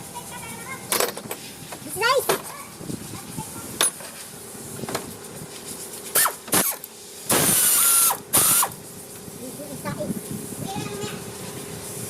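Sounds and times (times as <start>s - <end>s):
loud air hiss: 6.1s - 9.1s.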